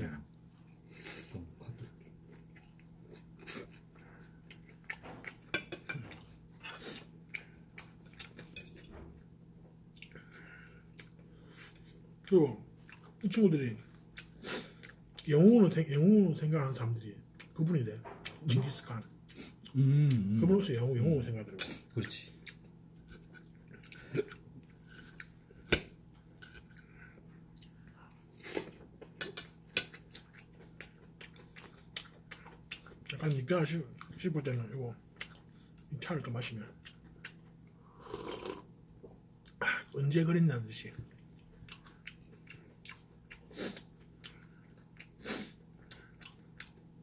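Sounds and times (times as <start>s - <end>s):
person chewing with mouth clicks: 0.5s - 8.6s, 9.9s - 10.2s, 10.9s - 13.2s, 13.9s - 15.3s, 19.3s - 20.4s, 21.6s - 25.8s, 26.4s - 33.3s, 35.1s - 35.9s, 36.8s - 39.6s, 41.2s - 46.9s.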